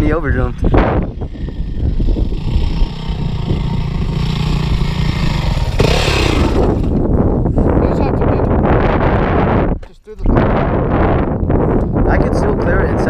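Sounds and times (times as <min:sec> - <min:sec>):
dirt bike engine running: 0:00.6 - 0:07.5.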